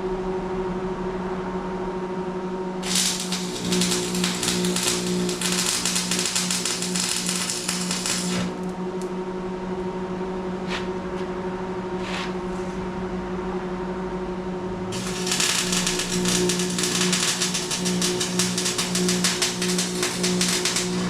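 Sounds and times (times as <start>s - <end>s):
steady hum: 0.0s - 21.0s
electric arc welding crackle: 2.8s - 9.1s, 14.9s - 21.0s.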